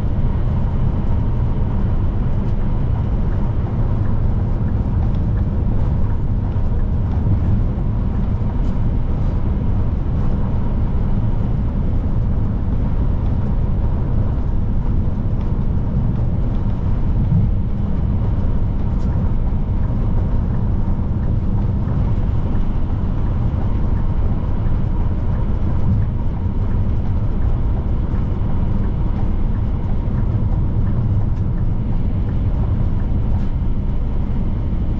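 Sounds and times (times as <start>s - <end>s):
road noise: 0.0s - 34.9s.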